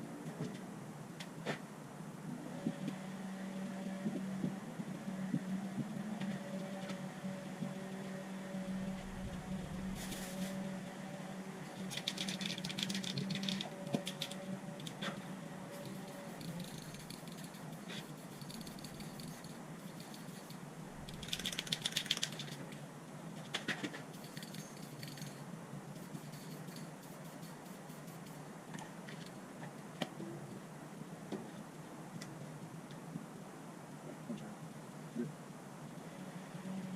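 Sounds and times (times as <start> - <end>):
steady low hum: 0.0 - 36.9
spray can ball rattling: 11.9 - 14.2, 15.8 - 22.6, 24.1 - 25.4, 26.0 - 28.4.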